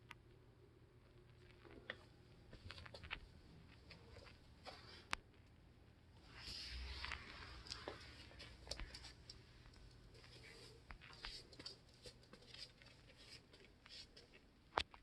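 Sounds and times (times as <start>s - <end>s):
light clicks and taps: 7.0s - 15.0s.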